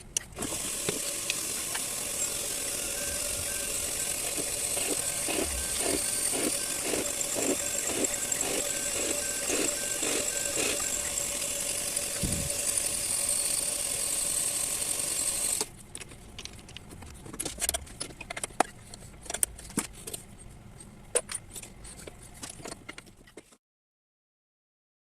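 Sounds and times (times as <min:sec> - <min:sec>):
metal lathe humming and whining: 0:00.4 - 0:15.7.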